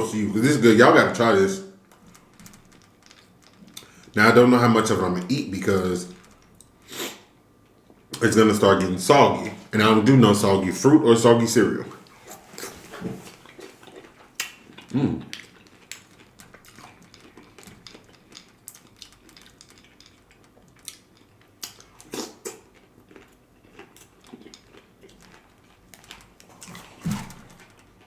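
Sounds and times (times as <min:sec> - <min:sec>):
wet chewing smacks and clicks: 0:12.0 - 0:28.0.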